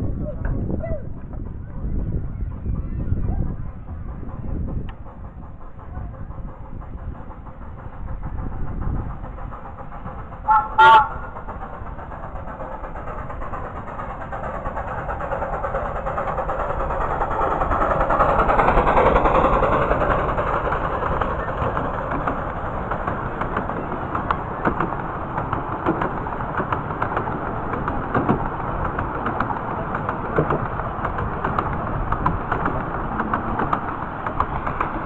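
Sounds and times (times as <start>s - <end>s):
miniature train passing: 0.0s - 35.0s
sharp clicks and knocks: 9.0s - 35.0s.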